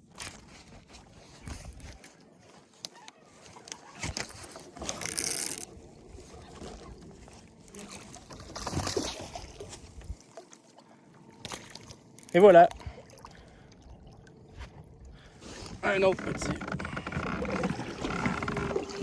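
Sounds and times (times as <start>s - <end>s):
water splashing: 5.2s - 19.0s.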